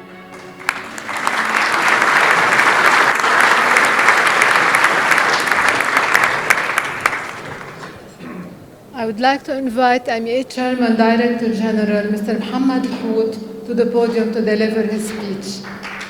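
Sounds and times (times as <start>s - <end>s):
audience applauding: 0.0s - 8.2s, 15.1s - 16.0s.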